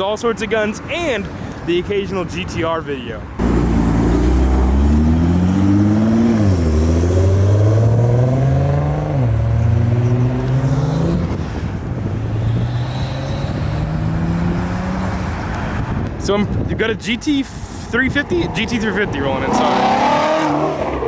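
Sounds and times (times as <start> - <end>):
car engine accelerating: 3.4 - 16.0, 18.3 - 21.0
gear upshifts: 18.1 - 21.0.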